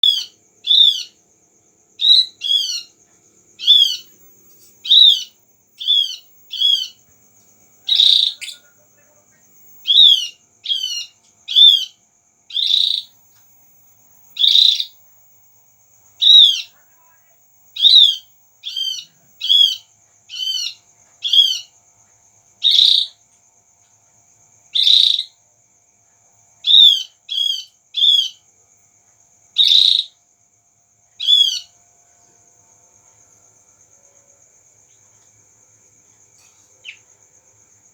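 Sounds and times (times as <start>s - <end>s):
bird calling sharp notes: 3.6s - 4.1s, 4.8s - 7.0s, 7.9s - 8.8s.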